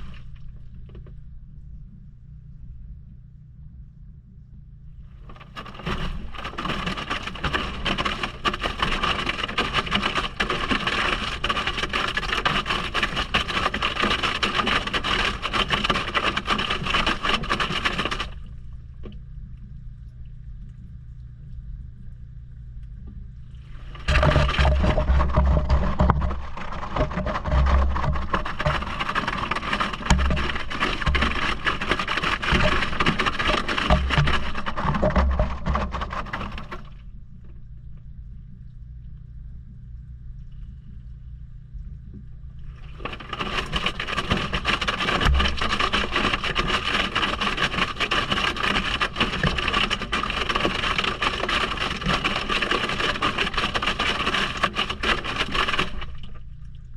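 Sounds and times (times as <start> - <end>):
water churning: 0.0 - 0.9, 5.2 - 19.1, 23.6 - 37.2, 42.6 - 56.9
washing machine motor hum: 23.0 - 37.6.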